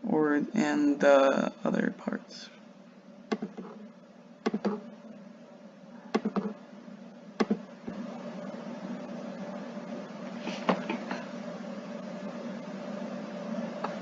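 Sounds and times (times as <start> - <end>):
low steady hum: 0.0 - 14.0
computer mouse clicks: 3.3 - 3.8, 6.1 - 6.5, 7.4 - 7.6.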